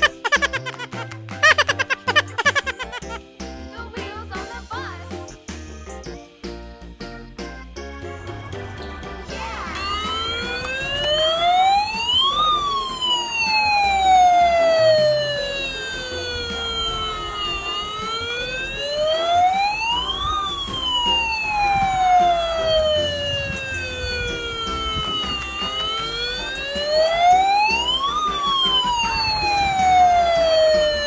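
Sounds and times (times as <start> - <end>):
fire truck siren wailing: 0.0 - 3.2, 9.4 - 31.0.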